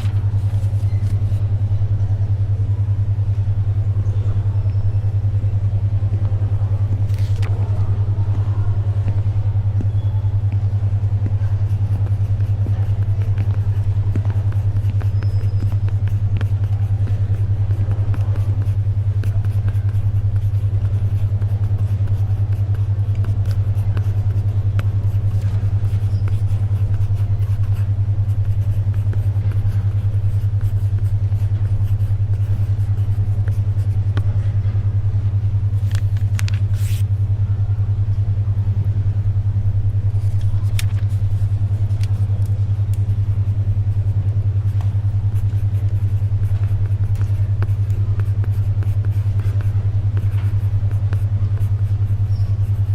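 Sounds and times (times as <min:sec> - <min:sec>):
paper rustle: 0:00.0 - 0:01.4, 0:07.1 - 0:07.6, 0:35.8 - 0:37.0, 0:40.2 - 0:42.2
faint library ambience: 0:00.0 - 0:52.9
pencil writing clicks: 0:11.2 - 0:34.3, 0:44.7 - 0:52.9.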